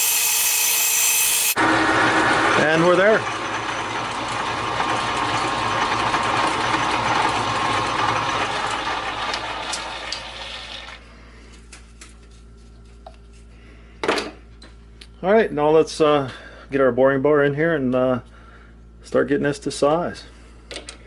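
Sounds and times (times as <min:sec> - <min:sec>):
lathe running and spinning down: 0:00.0 - 0:10.8.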